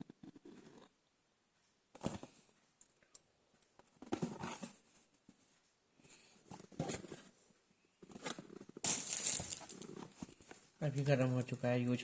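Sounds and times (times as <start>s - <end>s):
packaging rustling and scuffing: 8.8s - 10.4s.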